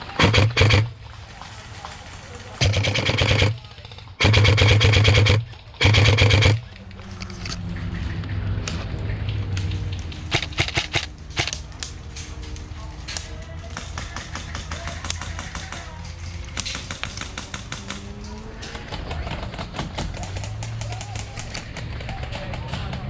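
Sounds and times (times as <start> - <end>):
airsoft rifle firing full auto: 0.0 - 0.9, 2.6 - 6.7, 10.3 - 11.6.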